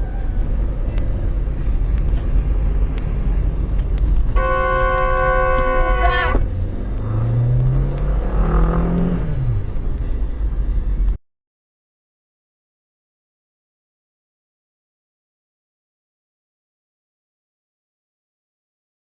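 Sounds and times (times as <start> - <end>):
vehicle engine and road rumble: 0.0 - 11.2
vehicle horn honking: 4.4 - 6.4
engine revving up: 6.5 - 9.7.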